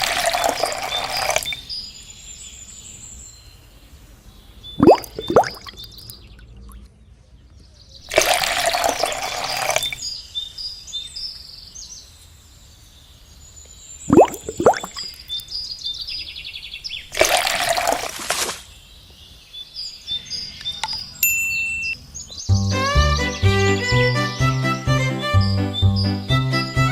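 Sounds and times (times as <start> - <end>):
water splashing: 0.0 - 1.6, 4.8 - 6.1, 8.1 - 10.0, 14.1 - 15.2, 17.1 - 18.7
faint high chirps: 4.7 - 6.9, 14.0 - 15.5.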